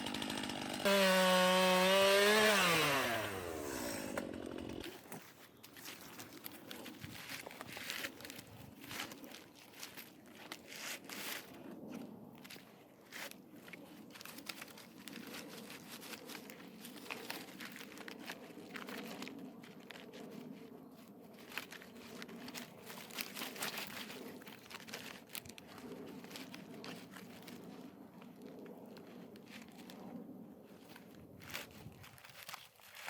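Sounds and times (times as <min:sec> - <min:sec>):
footsteps crunching through dry leaves: 0:01.1 - 0:33.0.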